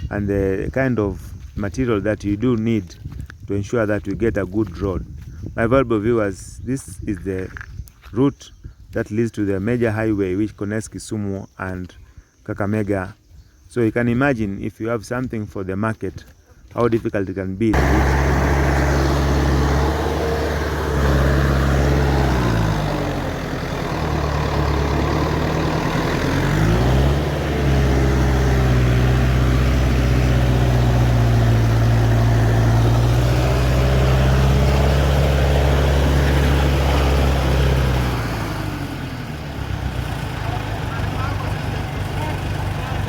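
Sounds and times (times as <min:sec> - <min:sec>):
heavy truck engine straining: 0:17.7 - 0:43.0.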